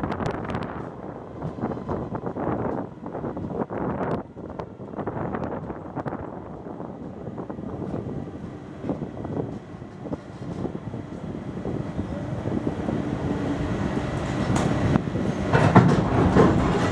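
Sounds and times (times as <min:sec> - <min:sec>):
train coaches rumbling on rails: 0:00.0 - 0:16.9
wheel clacks over rail joints: 0:14.2 - 0:16.9.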